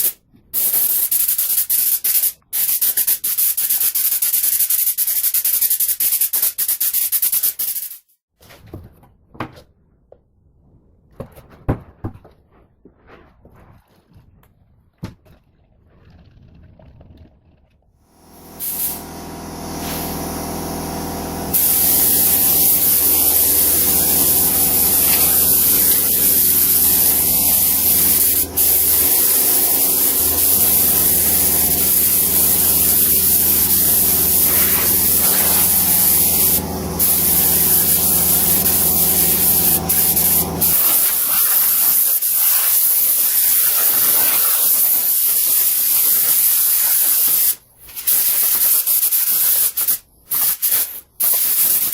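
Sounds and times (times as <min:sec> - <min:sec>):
motor humming: 0:18.1 - 0:40.9
compressed air hissing: 0:18.1 - 0:51.9.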